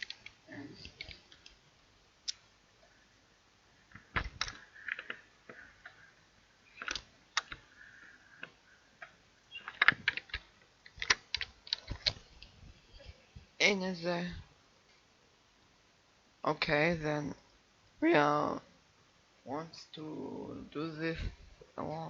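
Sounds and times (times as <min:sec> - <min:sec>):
computer keyboard typing: 0:00.0 - 0:01.6, 0:04.2 - 0:06.0, 0:06.8 - 0:07.7, 0:08.4 - 0:12.2
mouse clicking: 0:04.2 - 0:06.1, 0:06.7 - 0:12.5.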